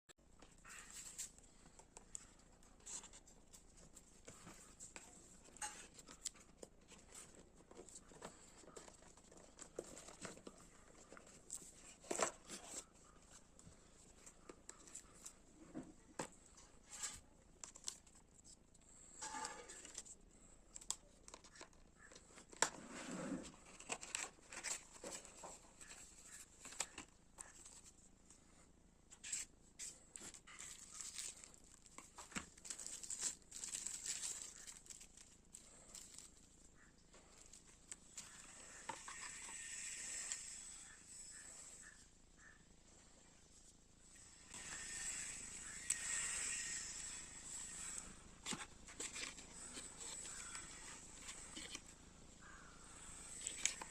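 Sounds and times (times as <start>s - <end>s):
plastic wrap and cardboard rustling: 21.3s - 28.1s, 29.2s - 40.7s, 44.3s - 53.9s.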